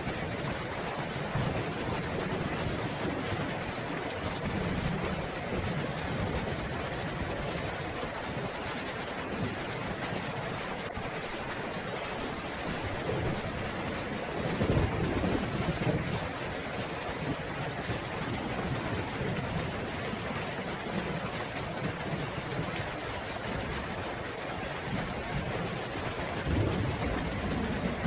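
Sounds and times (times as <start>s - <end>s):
steady rain falling: 0.0s - 28.0s
low rumbles of thunder: 13.0s - 16.4s, 24.9s - 28.0s.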